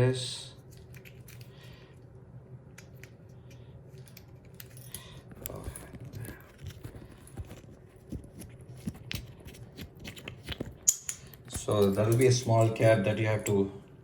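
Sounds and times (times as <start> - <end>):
hose fittings clicking and rattling: 8.8 - 13.6.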